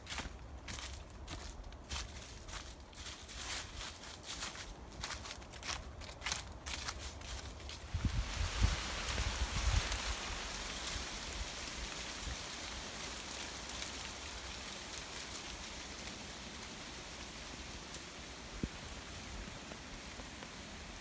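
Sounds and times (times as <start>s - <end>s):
steady rain falling: 8.5s - 21.0s.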